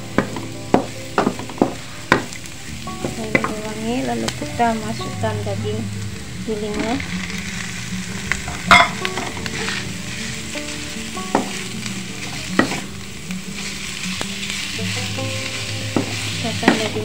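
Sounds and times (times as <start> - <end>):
meat and vegetables sizzling in wok: 0.0 - 17.0
wooden spatula scraping pan: 6.0 - 17.0.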